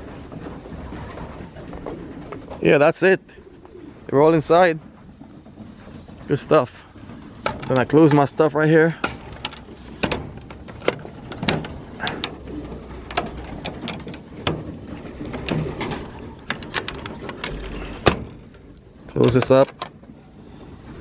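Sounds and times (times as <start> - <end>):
pigeons cooing: 0.0 - 19.1
sharp clicks and knocks: 9.0 - 20.1.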